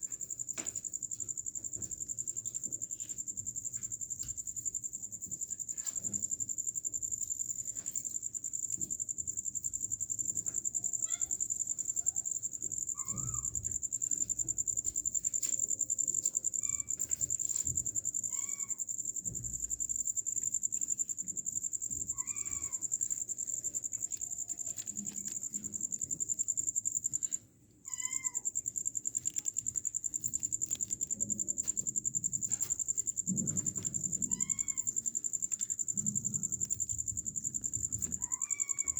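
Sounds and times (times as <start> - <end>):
kittens mewing: 27.9 - 28.5.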